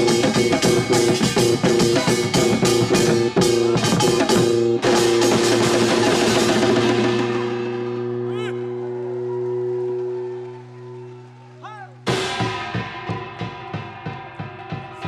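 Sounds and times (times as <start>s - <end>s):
fast drum and percussion strokes: 0.0s - 8.7s, 11.9s - 15.0s.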